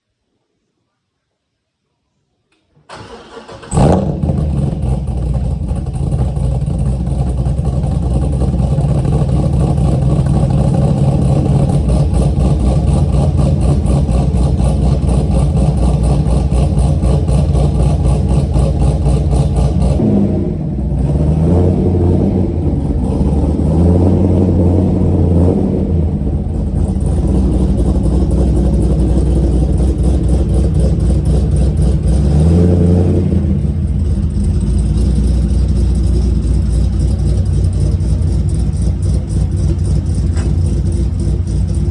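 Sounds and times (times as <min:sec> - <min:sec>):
vee eight engine loping idle: 0:02.9 - 0:20.0, 0:25.9 - 0:32.6, 0:33.2 - 0:41.9.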